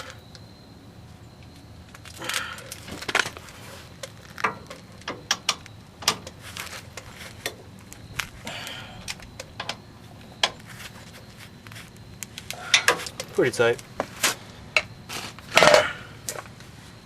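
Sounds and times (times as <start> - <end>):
metal clanks: 12.6 - 13.4, 15.5 - 16.4.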